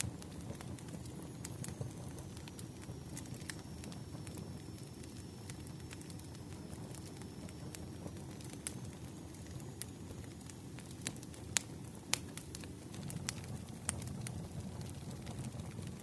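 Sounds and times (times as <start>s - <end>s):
firewood crackling and popping: 0.0s - 16.0s.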